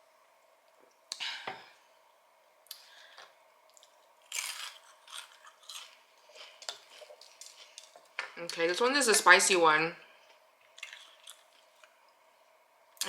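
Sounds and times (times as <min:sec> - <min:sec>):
fried chicken crunching: 0:03.7 - 0:08.0, 0:10.8 - 0:11.9.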